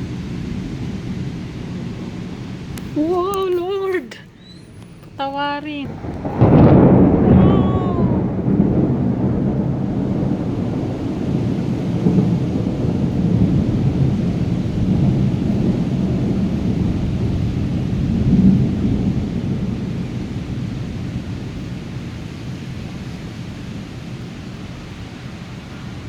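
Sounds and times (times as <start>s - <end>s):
steady rain: 0.0s - 26.0s
thunder rumbling: 0.0s - 26.0s.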